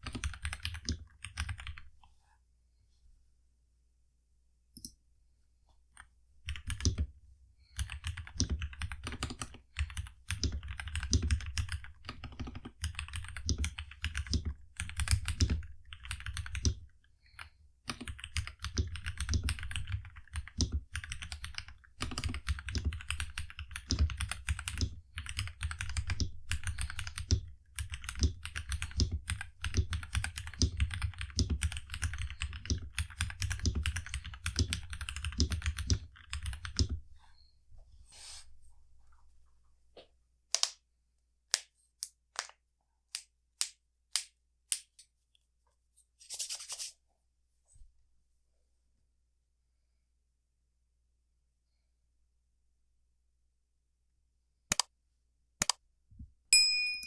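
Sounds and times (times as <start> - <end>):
mechanical keyboard typing: 0.0 - 1.9, 6.5 - 7.1, 7.8 - 16.9, 17.9 - 37.0.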